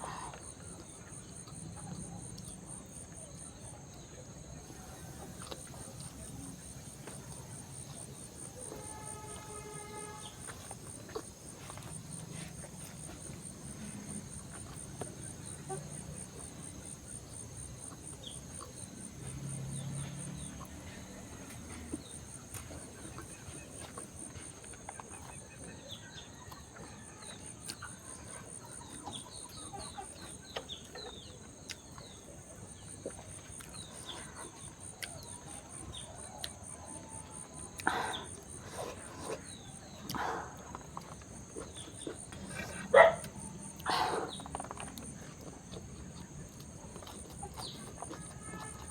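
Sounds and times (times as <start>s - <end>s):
insects chirring: 0.0s - 48.9s.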